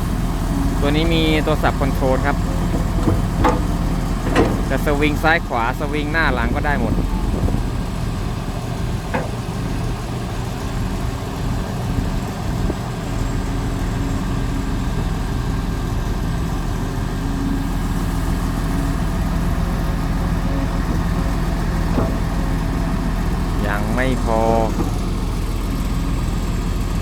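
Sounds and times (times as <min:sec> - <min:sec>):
excavator diesel engine humming: 0:00.0 - 0:27.0.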